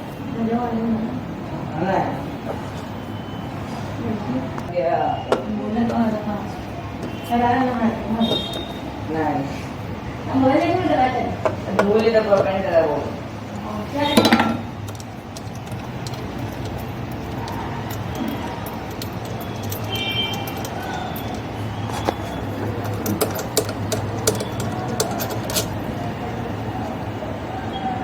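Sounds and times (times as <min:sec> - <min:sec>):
metal tools clinking: 0:07.0 - 0:09.0, 0:11.4 - 0:26.4.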